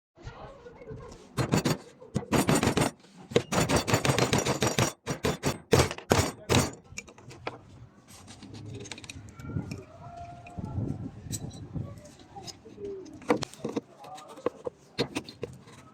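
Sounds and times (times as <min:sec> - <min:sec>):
fast sharp knocks: 0:01.4 - 0:06.8.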